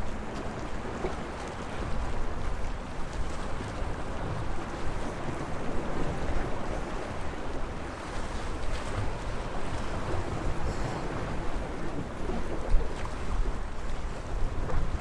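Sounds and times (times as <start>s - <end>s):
sea waves washing on shore: 0.0s - 15.0s.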